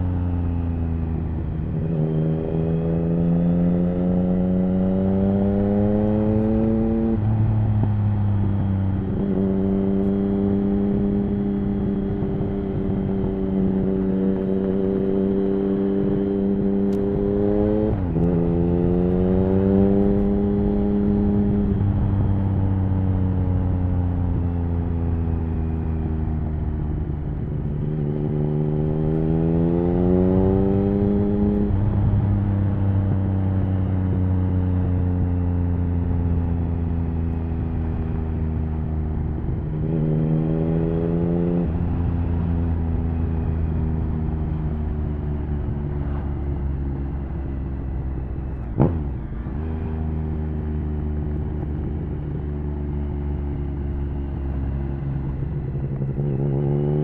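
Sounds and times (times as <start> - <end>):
motorcycle engine running: 3.2 - 57.0.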